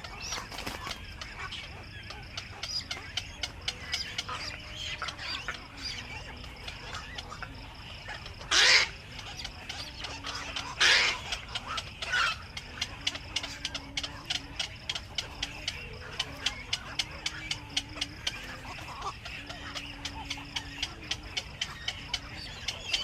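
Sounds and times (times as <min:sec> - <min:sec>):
bird chatter and clicks: 0:00.0 - 0:23.0.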